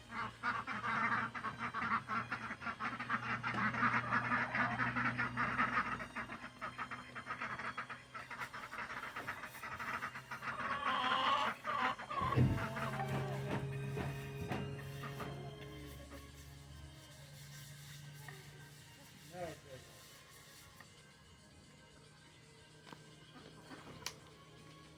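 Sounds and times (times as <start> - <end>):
steady low hum: 0.0 - 10.6, 11.6 - 19.8
ducks calling: 0.0 - 16.4.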